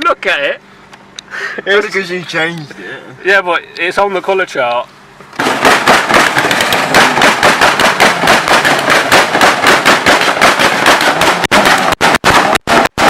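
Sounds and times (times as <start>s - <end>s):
car exhaust banging: 5.2s - 13.0s.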